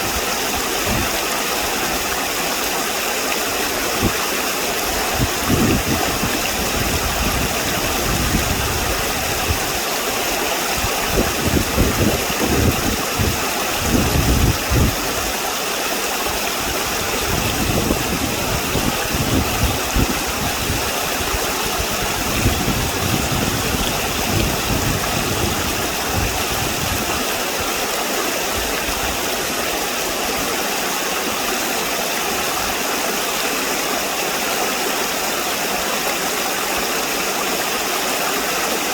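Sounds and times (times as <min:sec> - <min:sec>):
wind buffeting microphone: 0:00.0 - 0:02.1, 0:03.8 - 0:09.8, 0:10.7 - 0:15.4, 0:16.3 - 0:27.9
flowing stream water: 0:00.0 - 0:38.9.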